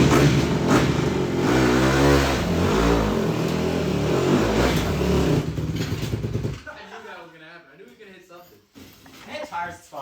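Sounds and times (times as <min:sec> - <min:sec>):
dirt bike engine revving: 0:00.0 - 0:05.7.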